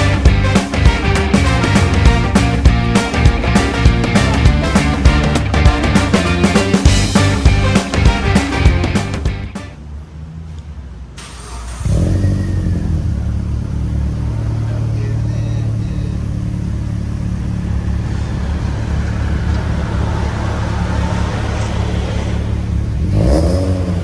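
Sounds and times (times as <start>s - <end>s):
music: 0.0s - 9.8s
car engine exhaust note: 0.0s - 24.0s.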